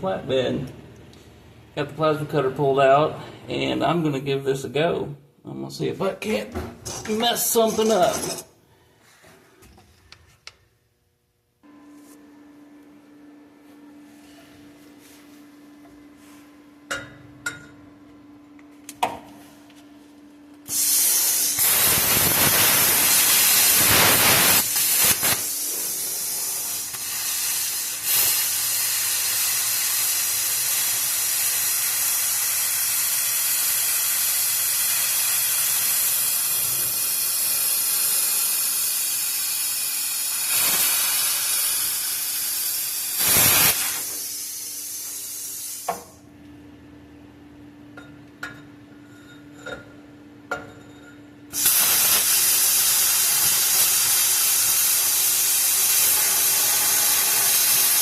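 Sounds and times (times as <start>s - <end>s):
plasma cutter hissing: 20.7s - 46.0s, 51.6s - 58.0s.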